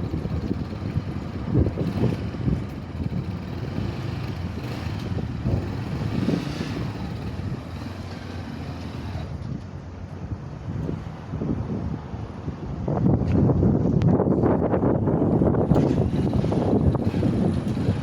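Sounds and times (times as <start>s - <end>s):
motorcycle running: 0.0s - 10.1s, 14.4s - 18.0s
wind buffeting microphone: 0.0s - 18.0s.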